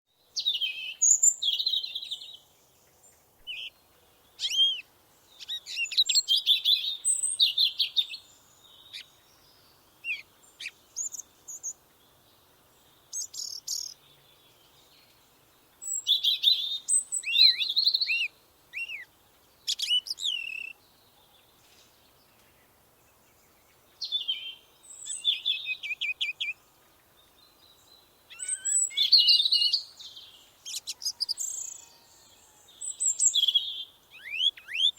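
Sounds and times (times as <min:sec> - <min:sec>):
bird chirping and trilling: 0:28.3 - 0:30.0, 0:32.9 - 0:34.9.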